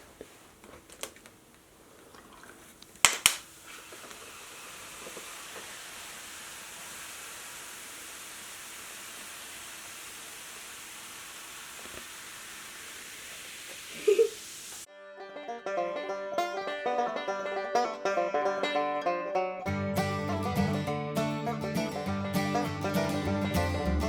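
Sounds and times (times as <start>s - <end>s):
fizzing hiss in bottle: 2.0s - 14.9s
sharp clicks: 3.0s - 3.5s.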